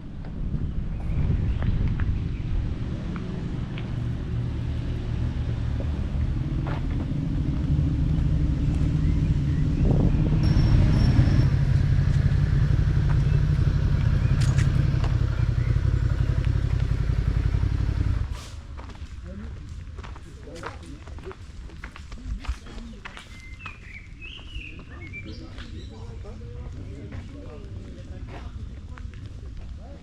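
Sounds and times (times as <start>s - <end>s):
racing car engine drone: 0.0s - 18.9s.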